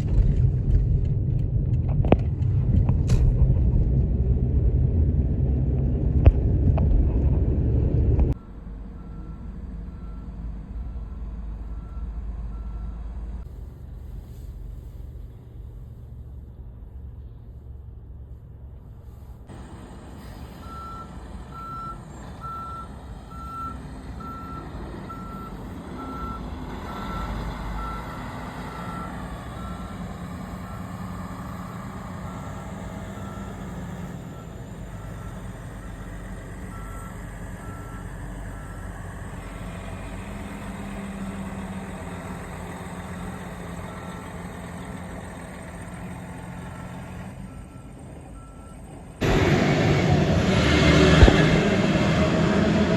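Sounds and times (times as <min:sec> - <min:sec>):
heavy engine rumbling: 0:00.0 - 0:52.9
truck reversing alarm beeping: 0:08.3 - 0:13.2, 0:20.2 - 0:52.1.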